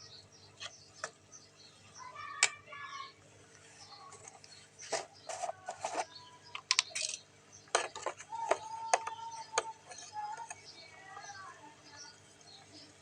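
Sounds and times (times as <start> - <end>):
utensils clinking against dishes: 4.1 - 10.6.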